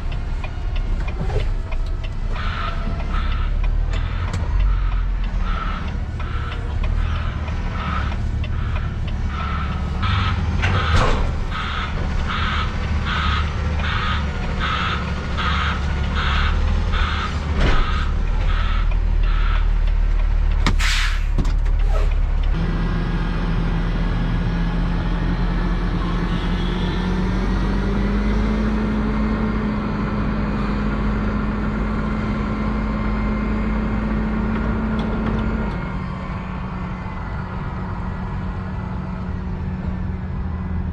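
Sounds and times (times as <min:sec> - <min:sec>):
diesel engine: 0:00.0 - 0:40.9
truck reversing alarm beeping: 0:02.3 - 0:19.8
air-brake hiss: 0:20.7 - 0:22.2.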